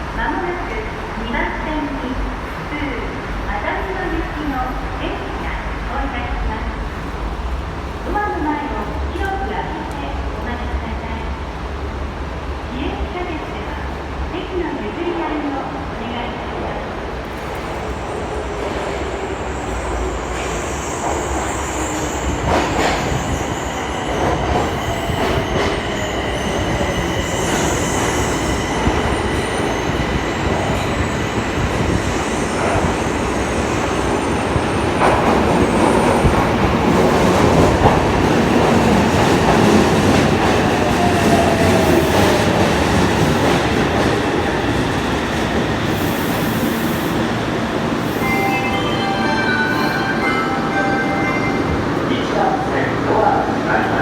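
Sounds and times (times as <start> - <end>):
train wheels rumbling on rail: 17.0 - 54.0.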